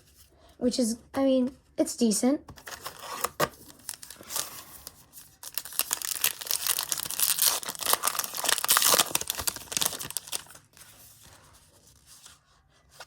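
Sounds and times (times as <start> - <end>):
plastic wrapper crinkling: 2.6 - 10.8.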